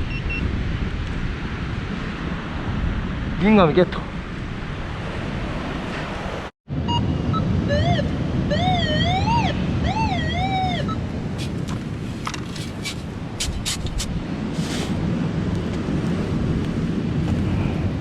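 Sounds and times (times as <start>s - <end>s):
wind: 0.0s - 18.0s
short sharp scrapes: 11.4s - 11.6s, 12.4s - 15.0s.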